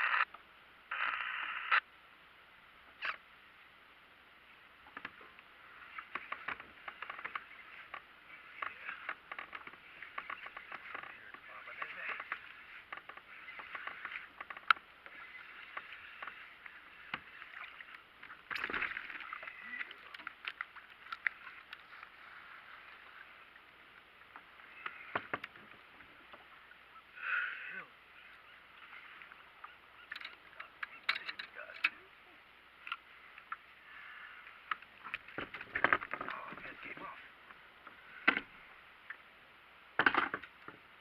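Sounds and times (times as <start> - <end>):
wind and water hiss: 0.0 - 41.0
fishing gear clicking and knocking: 6.0 - 16.4, 30.0 - 32.0, 34.7 - 36.6.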